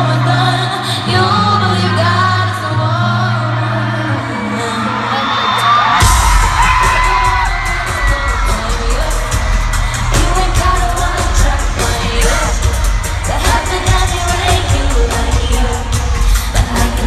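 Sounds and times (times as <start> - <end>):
person singing: 0.0 - 17.0
bass line: 6.0 - 17.0
drum beat: 6.0 - 17.0.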